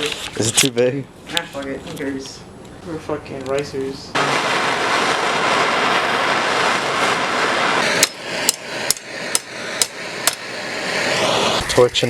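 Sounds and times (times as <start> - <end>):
torch hissing: 0.0 - 12.0
hammer striking metal pipe: 8.0 - 10.5.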